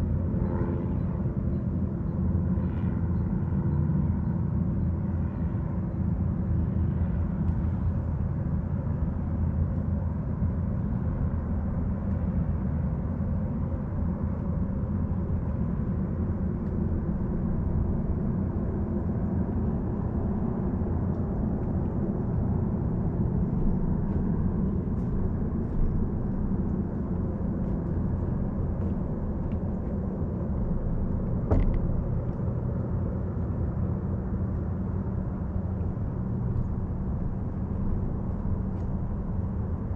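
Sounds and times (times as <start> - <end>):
distant motor engine drone: 0.0 - 39.9.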